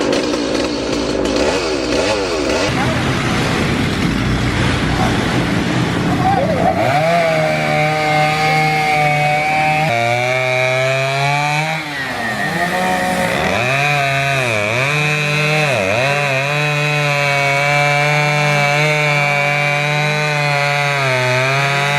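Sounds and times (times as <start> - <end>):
chainsaw cutting wood: 0.0 - 21.9.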